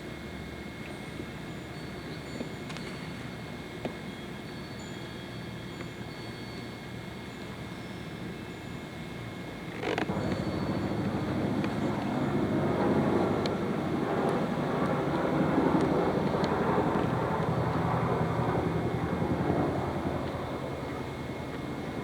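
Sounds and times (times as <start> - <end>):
vehicle rumbling: 10.1 - 13.7.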